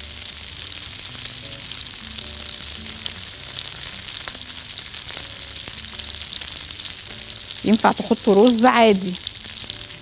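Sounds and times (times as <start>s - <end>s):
meat sizzling in a pan: 0.0s - 10.0s
small pops of frying: 2.6s - 10.0s.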